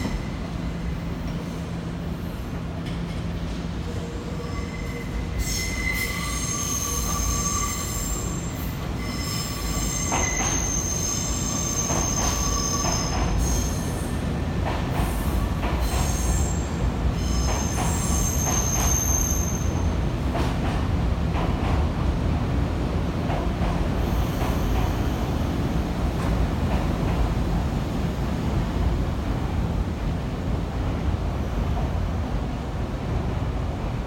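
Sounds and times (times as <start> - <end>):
train wheels squealing: 0.0 - 1.0, 3.9 - 14.3, 15.0 - 20.0
low train rumble: 0.0 - 34.0.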